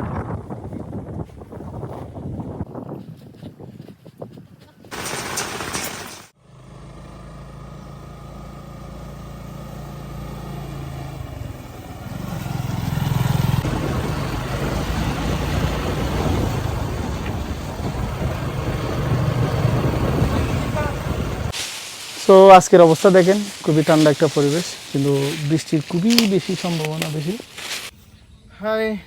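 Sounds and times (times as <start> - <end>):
motorcycle engine running: 4.9 - 22.2.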